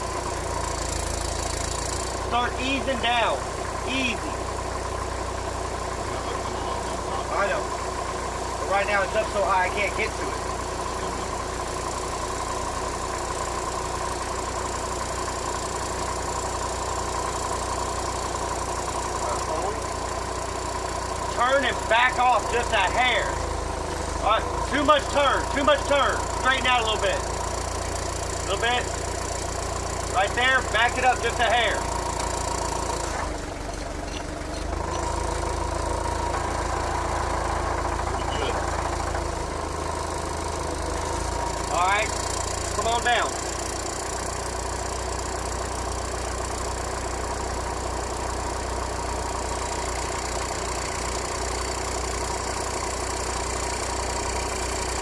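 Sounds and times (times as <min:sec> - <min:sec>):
constant whine: 0:00.0 - 0:49.5
forklift engine idling: 0:00.0 - 0:55.0
steady whine: 0:34.9 - 0:39.9.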